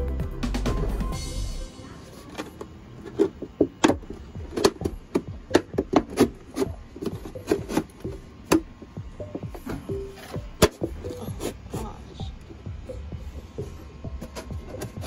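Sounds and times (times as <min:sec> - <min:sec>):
wood rubbing on plastic: 0:14.1 - 0:15.0.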